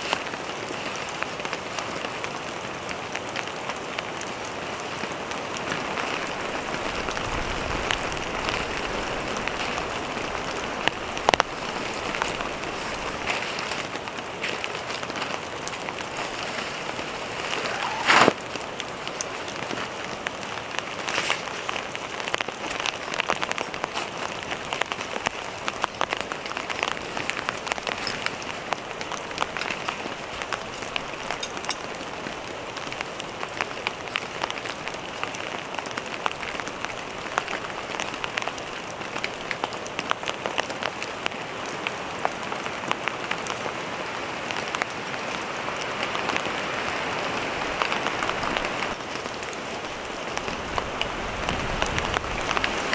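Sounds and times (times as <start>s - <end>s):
raindrops ticking close by: 0.0s - 52.9s
steady rain: 0.0s - 52.9s.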